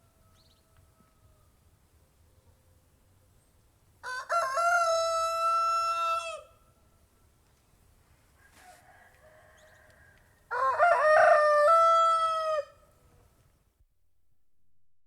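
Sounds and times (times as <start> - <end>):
faint rooster call: 0.0 - 1.6, 4.0 - 6.7, 8.2 - 13.3
rooster crowing: 4.0 - 6.6, 8.4 - 12.8.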